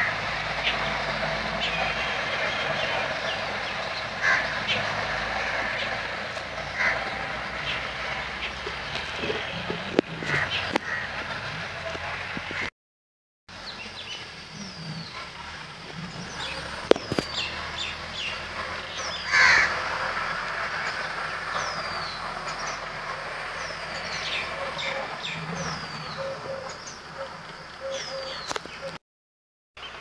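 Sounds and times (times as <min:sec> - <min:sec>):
birds chirping: 0:00.0 - 0:12.7, 0:13.5 - 0:29.0.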